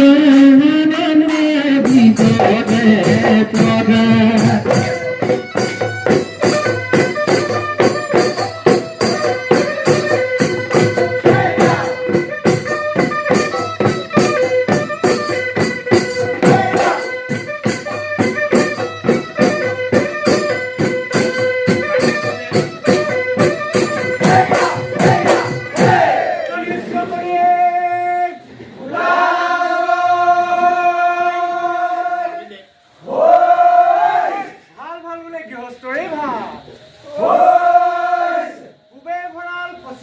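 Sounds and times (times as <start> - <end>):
held melody notes: 0.0 - 26.0
drum beats: 0.0 - 27.3
cymbal clashes: 1.3 - 26.0.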